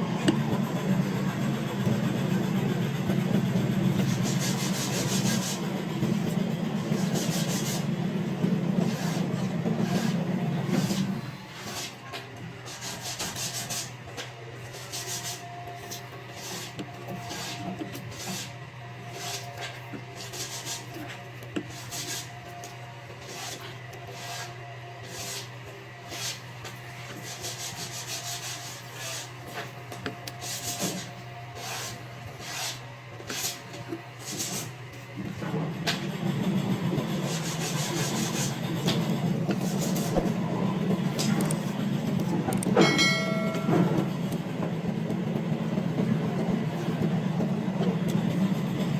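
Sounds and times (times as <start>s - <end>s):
sanding wood by hand: 0.8s - 7.9s, 8.8s - 12.0s, 12.6s - 18.5s, 20.2s - 21.1s, 21.7s - 22.4s, 23.2s - 26.4s, 27.0s - 29.8s, 30.4s - 34.7s, 36.5s - 41.9s.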